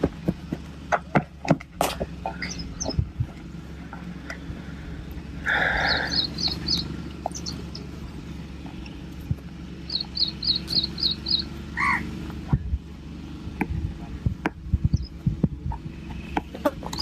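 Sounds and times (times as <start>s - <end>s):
steady low hum: 0.0s - 17.0s
bird chirping: 2.2s - 3.1s, 5.4s - 9.0s, 9.8s - 12.1s, 14.8s - 17.0s.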